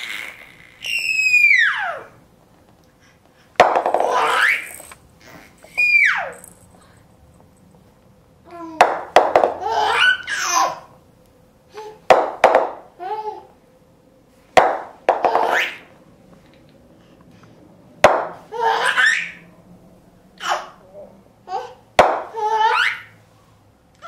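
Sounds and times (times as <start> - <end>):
baby laughing: 0.0 - 2.1, 4.0 - 6.3, 9.5 - 10.9, 18.5 - 19.4, 21.5 - 23.2
baby making noises: 0.0 - 2.1.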